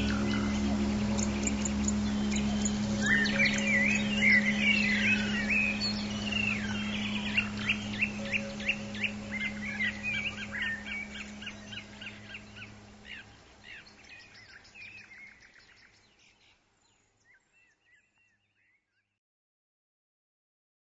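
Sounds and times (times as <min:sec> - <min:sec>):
low steady hum: 0:00.0 - 0:16.0
songbirds chirping and singing: 0:00.0 - 0:18.8.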